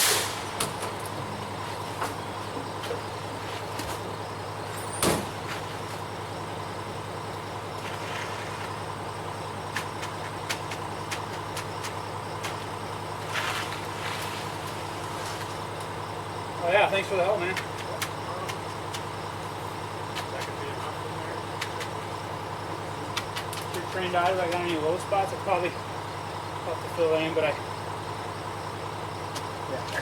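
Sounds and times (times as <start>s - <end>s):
air release hiss: 0.0s - 0.6s
diesel truck engine running: 0.0s - 30.0s.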